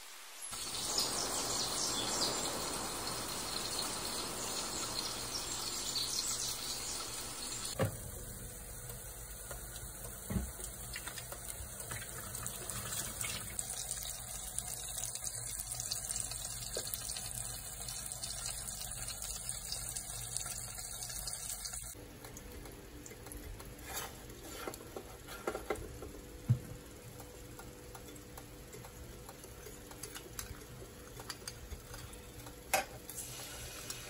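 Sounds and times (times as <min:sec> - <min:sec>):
chicken sizzling in oil: 0:00.0 - 0:22.0, 0:33.1 - 0:34.0.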